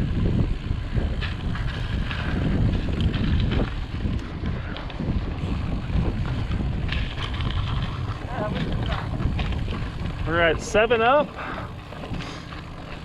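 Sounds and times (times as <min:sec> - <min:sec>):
bike clicks and rattles: 0:00.0 - 0:13.0
bike tyre rumble: 0:00.0 - 0:13.0
wind buffeting microphone: 0:00.0 - 0:13.0.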